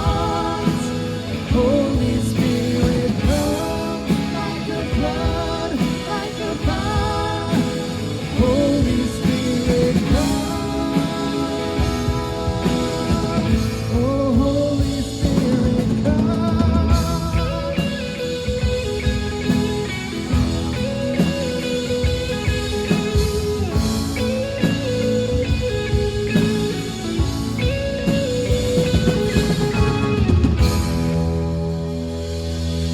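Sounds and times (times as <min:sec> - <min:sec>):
person singing melody: 0:00.0 - 0:18.6
rock band playing: 0:00.0 - 0:32.9.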